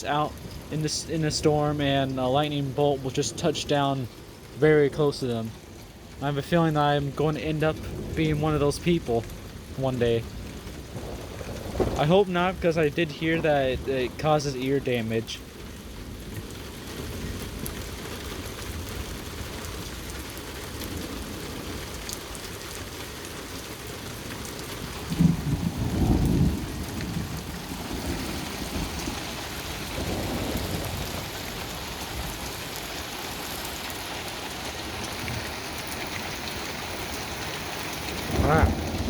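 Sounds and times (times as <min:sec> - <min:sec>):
steady rain falling: 0:00.0 - 0:39.0
thunder rumbling: 0:06.8 - 0:15.2, 0:24.8 - 0:33.8, 0:34.6 - 0:39.0.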